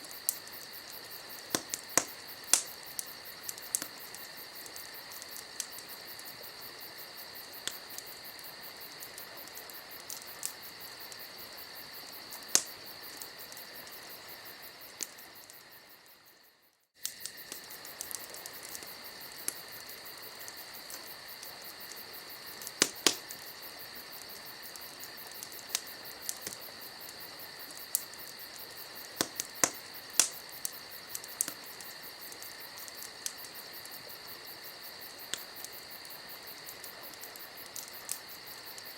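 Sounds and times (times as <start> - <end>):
campfire crackling and popping: 0.0 - 38.9
crickets trilling: 0.0 - 38.9.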